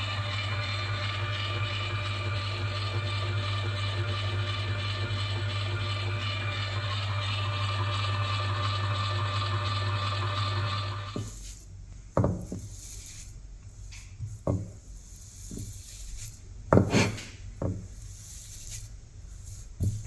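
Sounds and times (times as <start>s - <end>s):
electric grinder motor humming: 0.0s - 11.2s.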